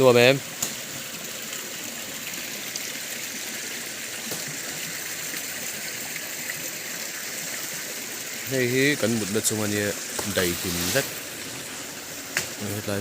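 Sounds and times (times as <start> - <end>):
stream running water: 0.0 - 13.0.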